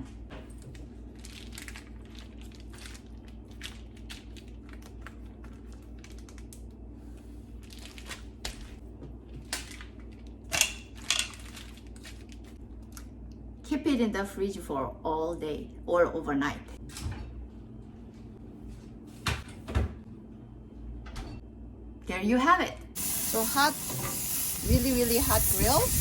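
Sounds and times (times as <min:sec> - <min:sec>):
plastic bag crinkling: 0:00.9 - 0:06.7, 0:07.6 - 0:08.5, 0:09.6 - 0:12.6.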